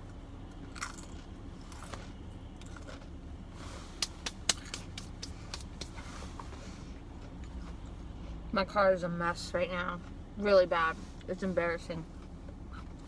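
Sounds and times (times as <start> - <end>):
low steady rumble: 0.0 - 13.0
chewing sandwich: 0.4 - 6.0.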